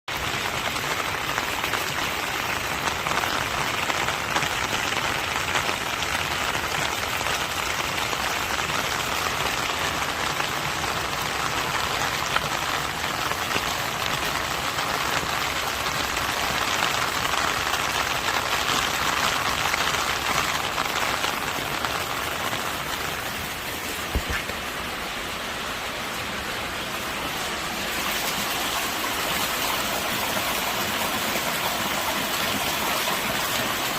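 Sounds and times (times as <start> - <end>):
rainwater running and splashing: 0.1 - 33.9.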